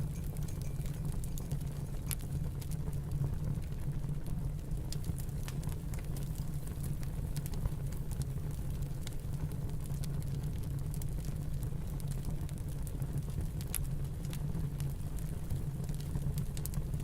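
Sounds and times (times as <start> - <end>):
fire pops and clicks: 0.0 - 3.0, 4.8 - 17.0
low rumble of storm wind: 0.0 - 13.8
wood fire crackling: 0.0 - 17.0.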